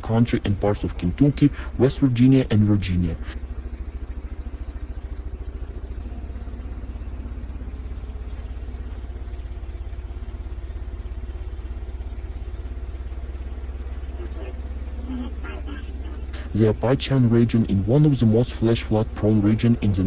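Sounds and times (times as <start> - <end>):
motor running with pulsing drone: 0.0 - 20.0.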